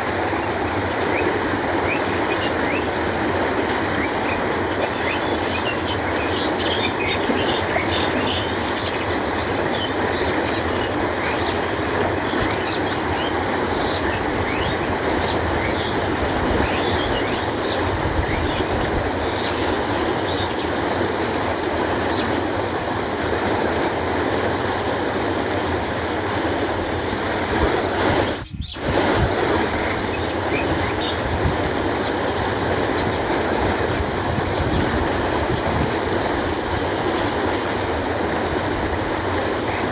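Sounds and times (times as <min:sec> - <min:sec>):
water flowing: 0:00.0 - 0:39.9
small birds chirping: 0:00.3 - 0:21.1, 0:22.0 - 0:22.4, 0:28.3 - 0:28.8, 0:29.8 - 0:31.3.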